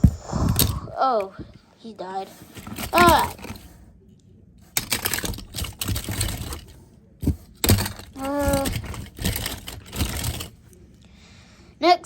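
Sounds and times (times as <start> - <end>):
toy cars rustling and clattering: 0.4 - 1.3, 2.2 - 3.8, 4.6 - 10.8.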